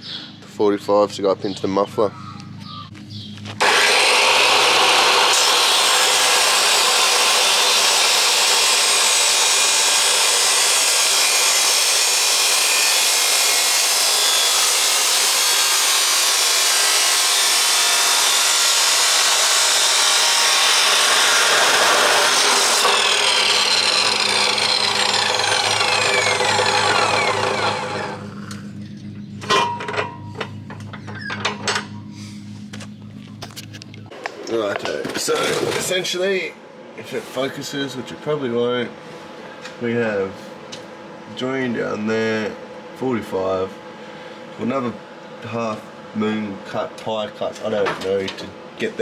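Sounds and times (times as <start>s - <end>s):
power tool cutting steel pipe: 3.6s - 28.5s
metal clanks: 29.4s - 31.9s.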